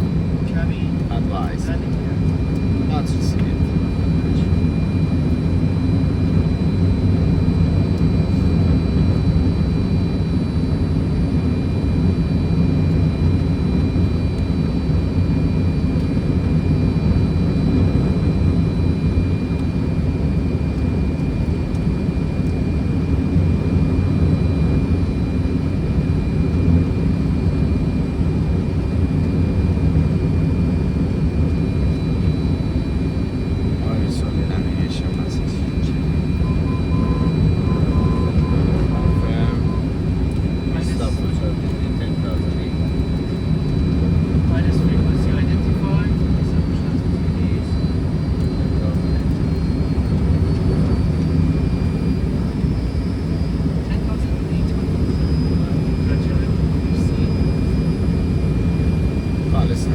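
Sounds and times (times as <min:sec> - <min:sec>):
low engine hum: 0:00.0 - 0:59.9
faint high tones: 0:36.4 - 0:40.0.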